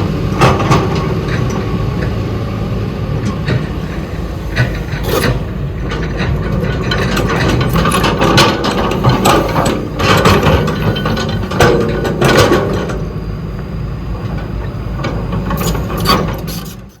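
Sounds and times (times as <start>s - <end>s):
diesel engine running: 0.0s - 17.0s
metallic clanks and scrapes: 3.2s - 13.0s, 15.5s - 17.0s.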